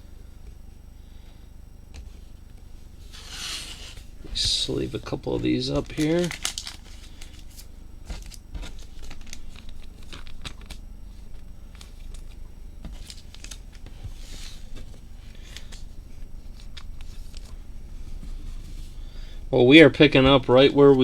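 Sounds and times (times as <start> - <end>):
plastic sleeves crinkling: 3.1 - 18.9.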